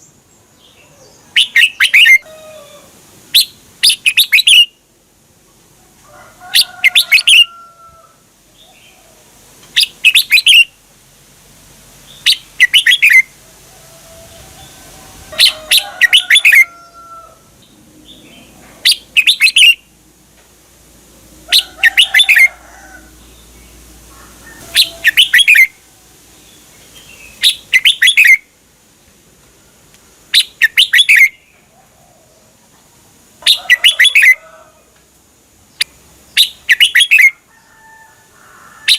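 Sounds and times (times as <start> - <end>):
bird singing bright phrases: 0.0 - 2.2, 3.3 - 4.8, 9.7 - 10.8, 12.0 - 13.3, 17.6 - 19.9, 24.5 - 25.7, 26.4 - 28.5, 30.3 - 31.6, 33.5 - 34.4, 35.7 - 37.3.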